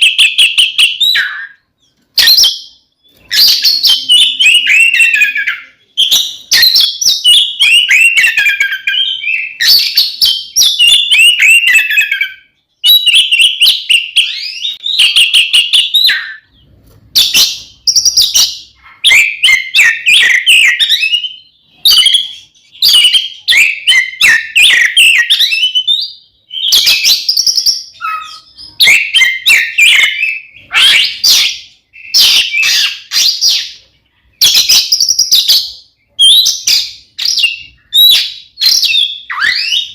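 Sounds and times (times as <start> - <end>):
bird singing rapid whistles: 0.0 - 33.8, 34.4 - 39.9.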